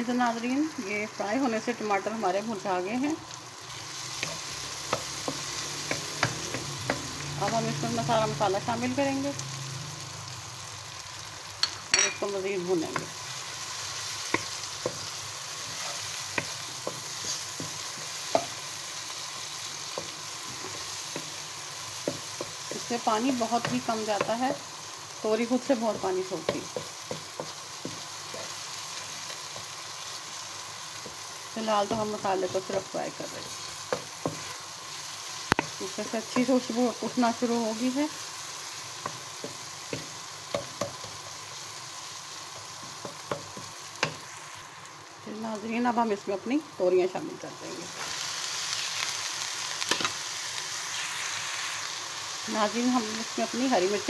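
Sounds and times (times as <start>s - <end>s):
food sizzling in oil: 0.0s - 54.0s
spatula knocking and scraping pan: 4.2s - 7.7s, 25.8s - 28.6s.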